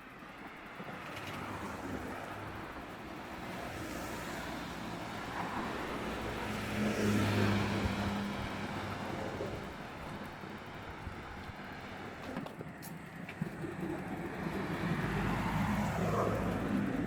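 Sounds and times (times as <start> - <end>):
car passing: 3.6 - 11.0, 13.4 - 17.0.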